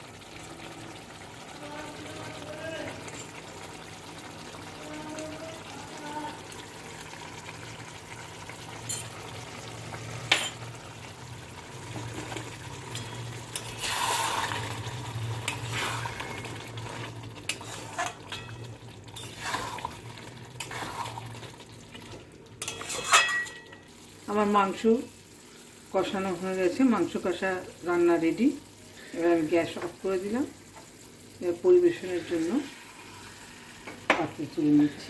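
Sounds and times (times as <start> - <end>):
meat sizzling in a pan: 0.0 - 34.9
spatula scraping a pan: 17.5 - 18.2, 22.6 - 23.6.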